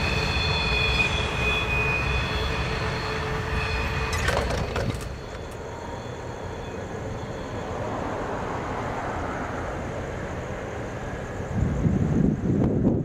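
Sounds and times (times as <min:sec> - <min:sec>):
faint squeal: 0:00.0 - 0:09.6
freight train rumbling: 0:00.0 - 0:13.0
wind on microphone: 0:11.3 - 0:13.0.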